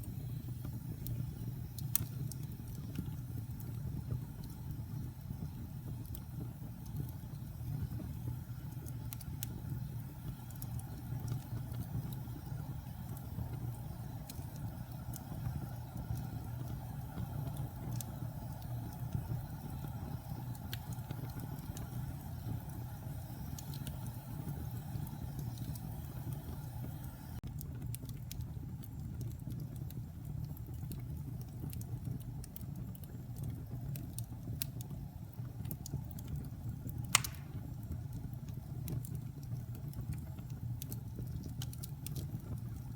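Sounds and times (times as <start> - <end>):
wood fire crackling: 0.0 - 42.9
sharp pop: 37.2 - 37.6.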